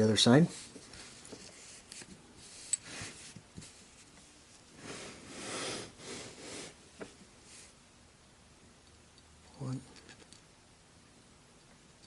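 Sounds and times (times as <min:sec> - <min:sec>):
rustling and rubbing: 0:00.0 - 0:07.8.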